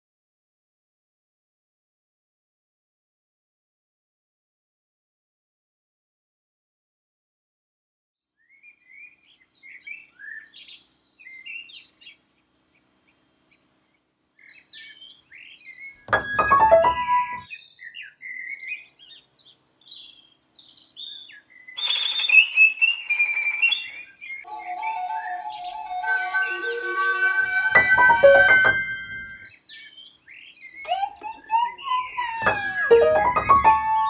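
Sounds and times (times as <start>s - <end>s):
birds chirping and singing: 14.5s - 34.0s
struck chord ringing: 24.5s - 29.4s.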